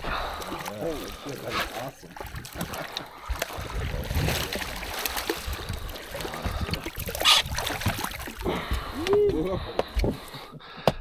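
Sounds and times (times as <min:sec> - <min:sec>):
water splashing and trickling: 0:00.0 - 0:10.5.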